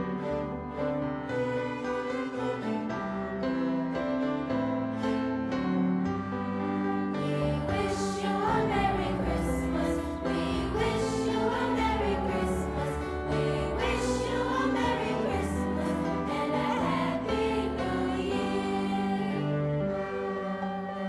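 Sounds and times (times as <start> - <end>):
choir singing: 0.0 - 21.0.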